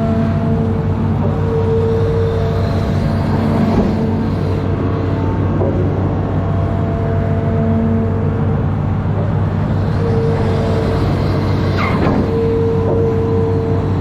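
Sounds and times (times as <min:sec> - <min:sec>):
excavator diesel engine running: 0:00.0 - 0:14.0
hydraulic whine: 0:00.0 - 0:14.0
falling squeal: 0:09.8 - 0:13.6.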